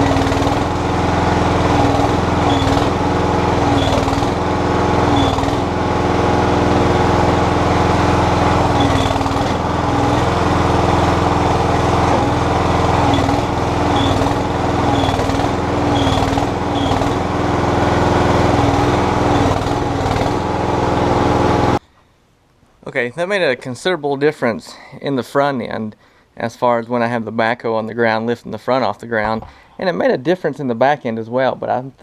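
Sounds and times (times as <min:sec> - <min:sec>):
backhoe engine running: 0:00.0 - 0:21.8.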